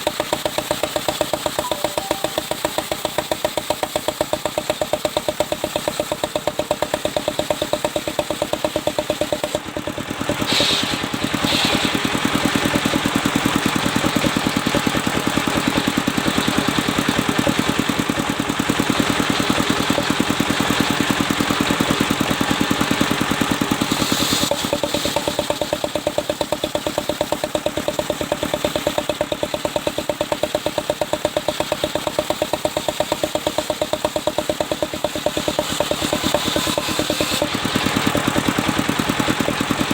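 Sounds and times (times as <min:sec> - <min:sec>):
sawmill engine running: 0:00.0 - 0:39.9
saw blade cutting log: 0:10.4 - 0:13.0, 0:22.4 - 0:27.2, 0:33.4 - 0:38.3.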